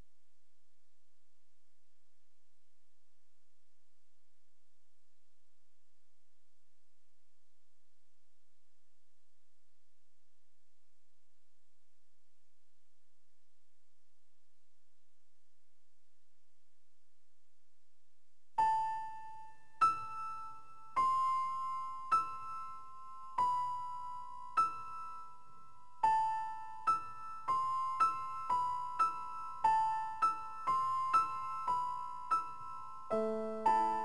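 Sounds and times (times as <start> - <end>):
slow piano melody: 18.6 - 34.0.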